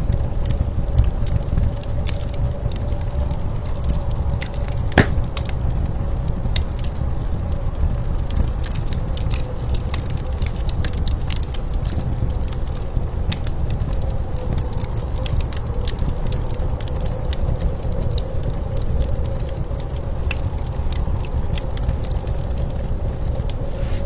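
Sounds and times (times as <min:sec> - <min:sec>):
wood fire crackling and popping: 0:05.0 - 0:05.6.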